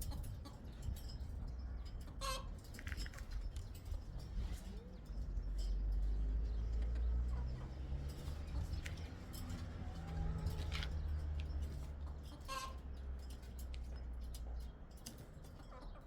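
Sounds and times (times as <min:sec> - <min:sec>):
chicken calls: 0:02.1 - 0:02.6, 0:12.0 - 0:12.8.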